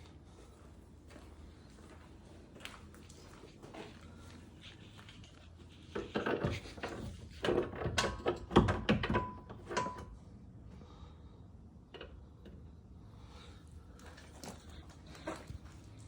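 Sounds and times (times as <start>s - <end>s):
tools knocking and clattering: 6.0s - 10.1s.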